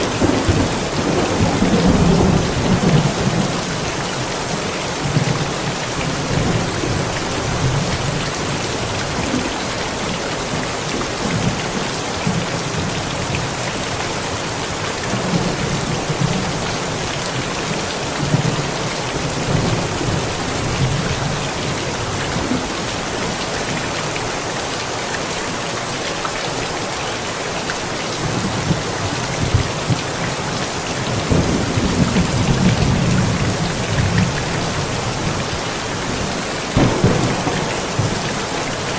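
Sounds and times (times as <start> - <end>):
thunder rumbling: 0.0 - 3.9, 31.1 - 38.9
heavy rain hissing: 0.0 - 38.9.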